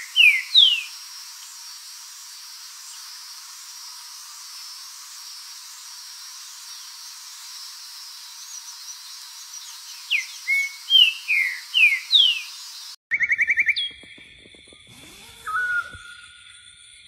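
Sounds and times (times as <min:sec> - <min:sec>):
bird trill: 0:00.0 - 0:01.0, 0:08.4 - 0:17.0
bird whistling song: 0:00.0 - 0:01.0, 0:08.4 - 0:14.1, 0:15.3 - 0:16.6
steady hiss: 0:00.0 - 0:13.0.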